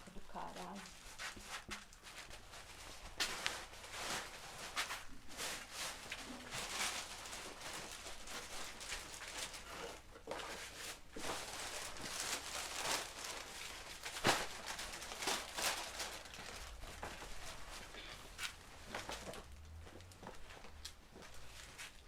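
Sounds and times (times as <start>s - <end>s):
rustling and handling noises: 0.0s - 22.0s.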